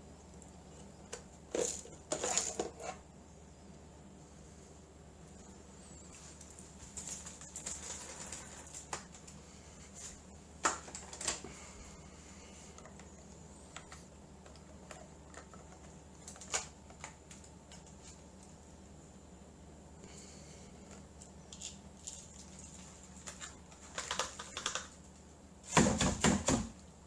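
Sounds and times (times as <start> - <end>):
faint steady hum: 0.0 - 27.0
rustling: 4.4 - 18.6.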